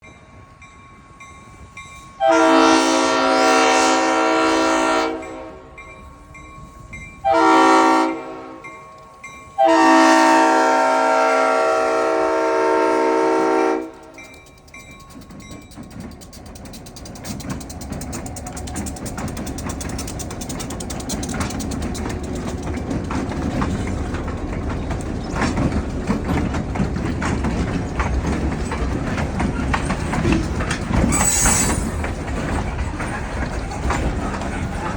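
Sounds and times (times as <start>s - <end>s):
train rumbling past: 0.0s - 34.9s
train horn chord: 2.2s - 5.8s, 7.2s - 8.7s, 9.6s - 14.1s
wheels clacking over rail joints: 13.0s - 34.9s
high squeal: 31.1s - 32.1s.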